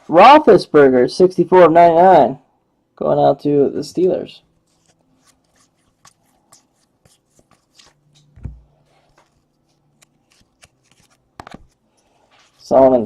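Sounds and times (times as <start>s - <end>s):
cards sliding and tapping: 4.7s - 12.6s.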